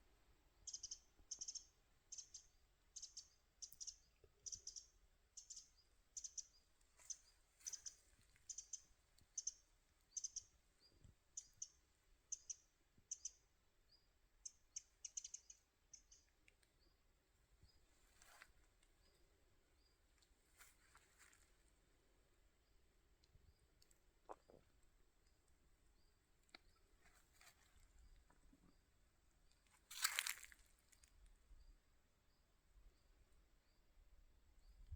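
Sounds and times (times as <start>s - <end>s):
small bird chirping: 0.6s - 17.0s.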